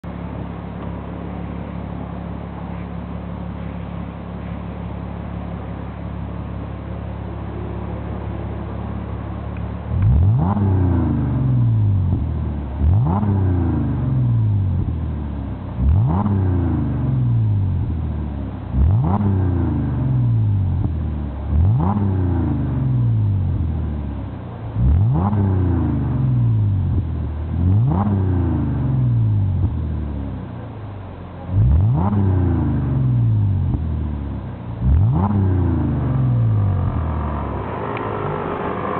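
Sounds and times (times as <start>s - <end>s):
car engine revving: 7.3s - 30.6s, 31.4s - 38.9s.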